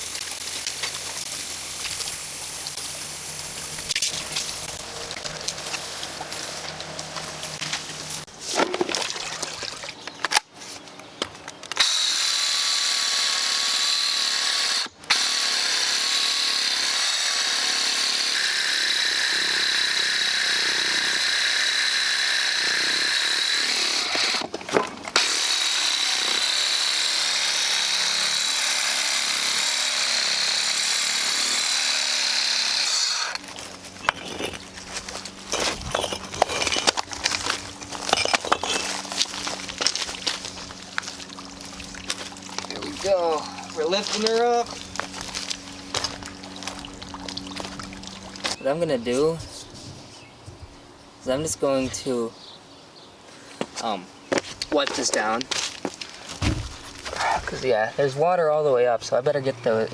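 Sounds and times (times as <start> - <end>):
water spraying onto rocks: 0.0 - 6.4.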